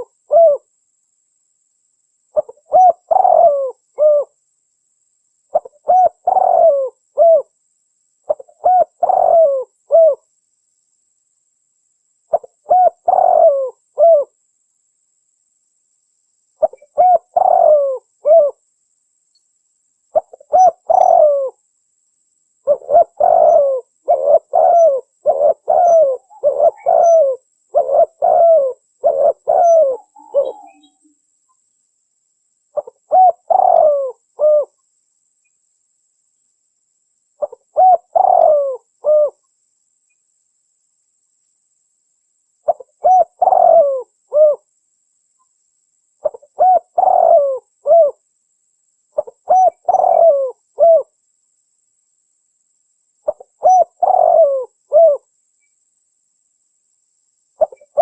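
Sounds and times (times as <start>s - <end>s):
dove cooing: 0.0s - 0.7s, 2.4s - 4.4s, 5.5s - 7.5s, 8.3s - 10.2s, 12.3s - 14.4s, 16.6s - 18.6s, 20.1s - 21.6s, 22.6s - 31.1s, 32.8s - 34.8s, 37.4s - 39.4s, 42.7s - 44.7s, 46.2s - 48.2s, 49.2s - 51.1s, 53.3s - 55.3s, 57.6s - 58.0s.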